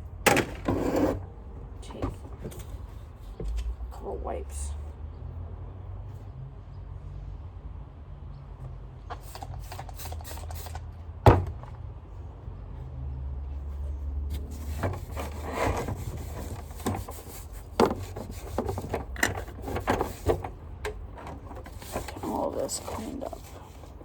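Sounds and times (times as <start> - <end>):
wipe rubbing on plastic part: 14.3 - 24.0.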